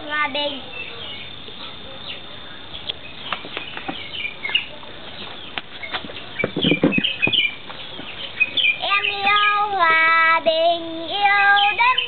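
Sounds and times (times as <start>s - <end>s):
girl singing: 0.0s - 0.7s, 8.8s - 12.0s
small birds chirping: 0.0s - 10.0s, 11.0s - 12.0s.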